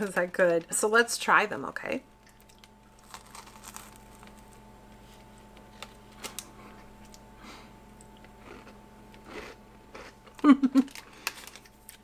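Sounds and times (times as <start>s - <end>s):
steady low hum: 0.0s - 12.0s
cookie crunching: 2.3s - 7.3s.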